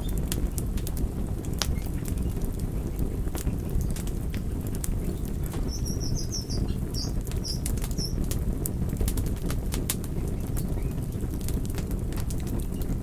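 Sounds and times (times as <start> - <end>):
campfire flame rushing: 0.0 - 13.0
crackles and pops of burning wood: 0.0 - 13.0
high chirps: 5.6 - 8.2.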